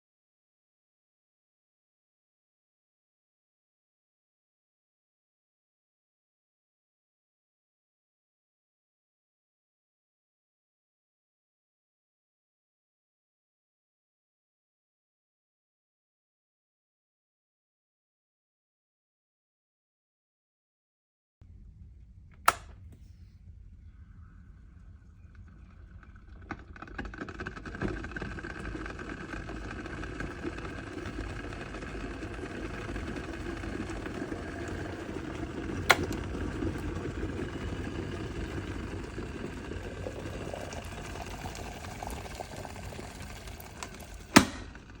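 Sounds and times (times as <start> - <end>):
electric kettle heating water: 22.4 - 22.8, 25.2 - 45.0
kettle switch click: 22.4 - 22.8, 35.9 - 36.2, 44.4 - 44.8.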